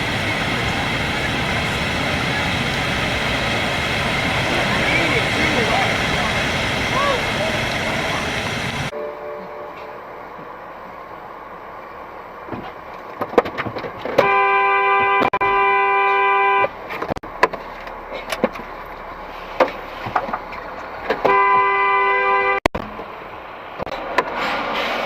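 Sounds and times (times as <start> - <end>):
vehicle horn blasts: 14.2 - 16.7, 21.2 - 22.6.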